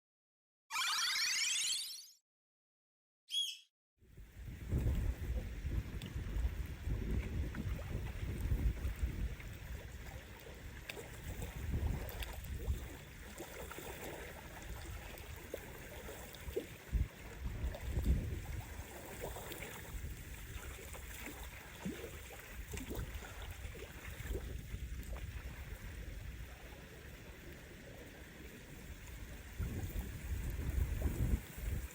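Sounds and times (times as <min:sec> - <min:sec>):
wind buffeting microphone: 0:04.2 - 0:10.2, 0:11.2 - 0:13.0, 0:16.8 - 0:19.0, 0:29.2 - 0:31.9
water splashing at shore: 0:07.2 - 0:25.9.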